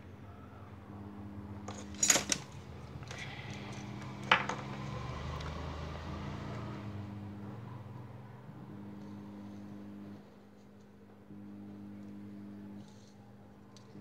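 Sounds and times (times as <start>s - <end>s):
low electrical hum: 0.0s - 14.0s
small metal tools clinking: 1.7s - 4.9s.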